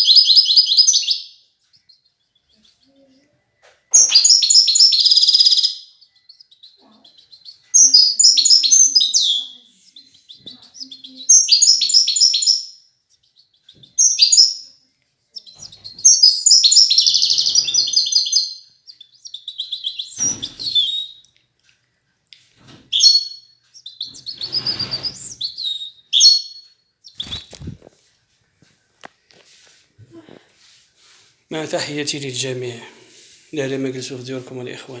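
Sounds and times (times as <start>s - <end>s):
goldfinch twittering song: 3.9s - 14.7s, 15.4s - 21.3s, 22.9s - 27.7s.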